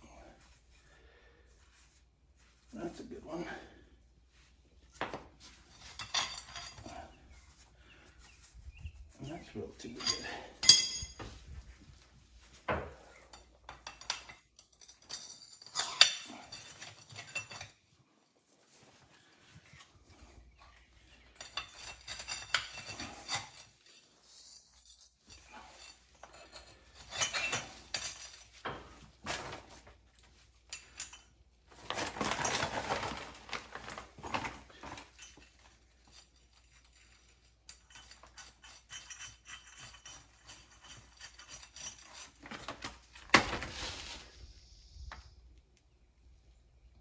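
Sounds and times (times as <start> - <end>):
metal parts clinking and scraping: 5.4 - 8.4, 9.2 - 11.5, 12.4 - 17.9, 19.6 - 43.8.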